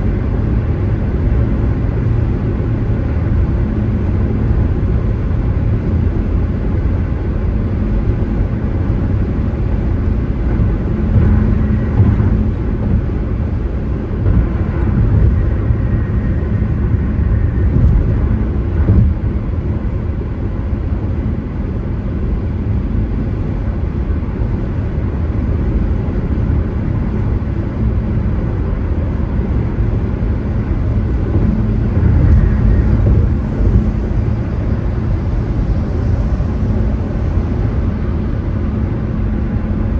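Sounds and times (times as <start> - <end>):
car road noise: 0.0 - 22.6, 29.1 - 38.2.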